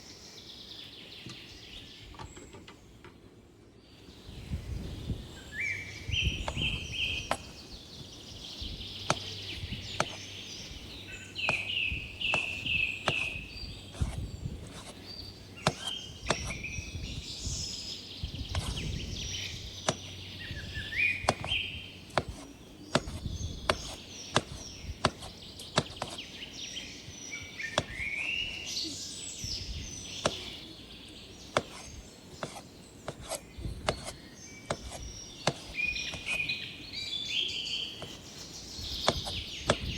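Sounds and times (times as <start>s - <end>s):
birds chirping: 0.0s - 39.9s
knife chopping on wooden board: 11.4s - 13.4s, 15.6s - 16.6s, 21.2s - 26.2s, 27.8s - 28.3s, 30.2s - 30.6s, 31.5s - 36.4s, 39.0s - 39.9s.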